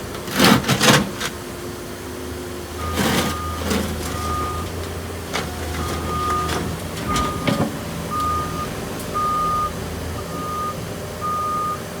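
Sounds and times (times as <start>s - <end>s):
diesel engine running: 0.0s - 12.0s
backup alarm beeping: 2.8s - 4.8s, 5.5s - 12.0s.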